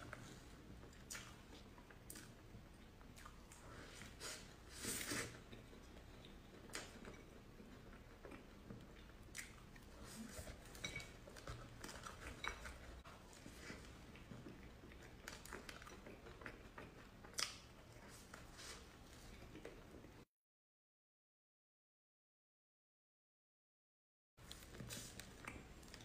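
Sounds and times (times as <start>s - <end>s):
wet chewing mouth sounds: 0.1s - 20.2s.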